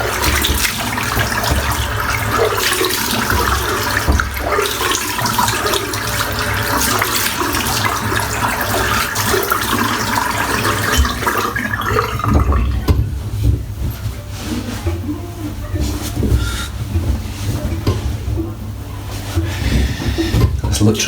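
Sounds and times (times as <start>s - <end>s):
tap water splashing into sink: 0.0s - 14.0s, 19.4s - 20.8s.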